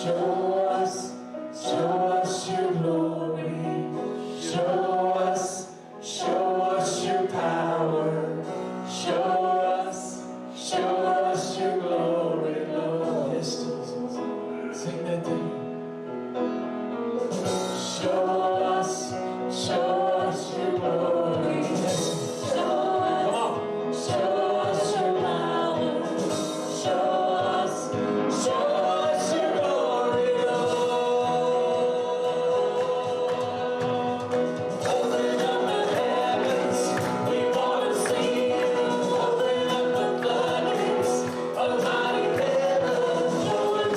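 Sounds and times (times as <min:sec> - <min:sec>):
group singing gospel song: 0:00.0 - 0:15.7, 0:17.2 - 0:43.9
instrumental backing with percussion: 0:17.1 - 0:43.9
bass: 0:19.7 - 0:43.9.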